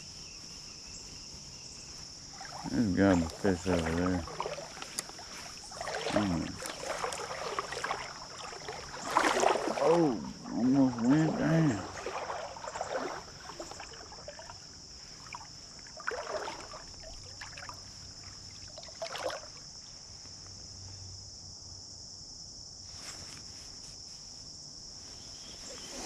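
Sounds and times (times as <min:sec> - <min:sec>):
high-pitched insect drone: 0:00.0 - 0:18.9
water sloshing around legs: 0:00.6 - 0:20.0.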